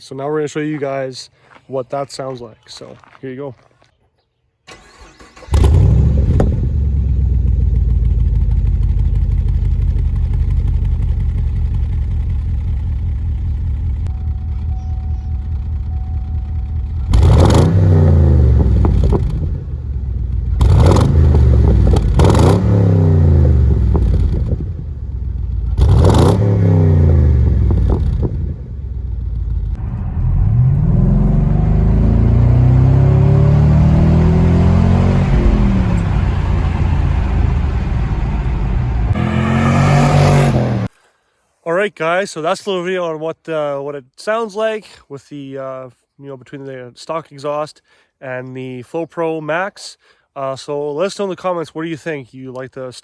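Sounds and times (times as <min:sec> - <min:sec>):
car exhaust idling and revving: 0:05.5 - 0:40.9.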